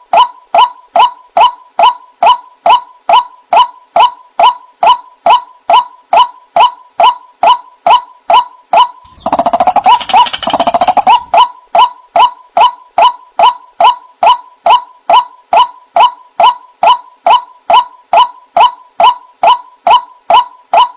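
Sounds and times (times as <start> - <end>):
waterhen calls: 8.8 - 13.6.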